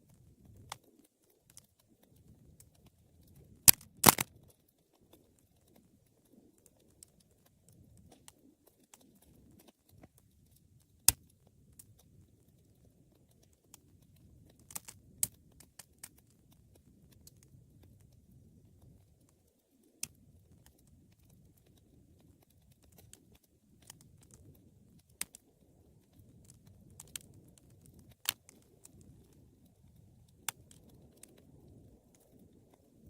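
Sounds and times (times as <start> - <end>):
fire crackles and pops: 0.0 - 33.0
wood fire rumbling: 20.0 - 33.0.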